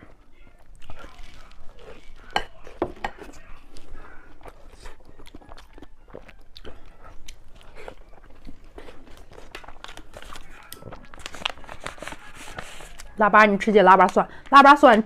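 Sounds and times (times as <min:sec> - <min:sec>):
person chewing food: 0:00.0 - 0:13.2.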